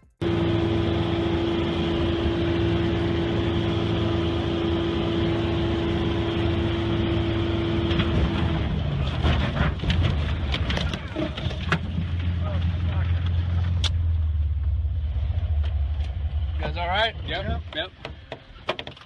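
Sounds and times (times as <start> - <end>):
plane engine droning: 0.2 - 9.2
sharp cracks and knocks: 9.0 - 12.4, 17.8 - 19.0.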